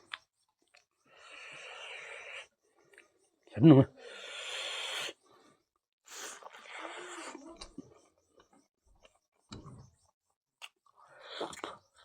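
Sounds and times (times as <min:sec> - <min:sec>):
smacking and chewing: 0:10.6 - 0:12.0.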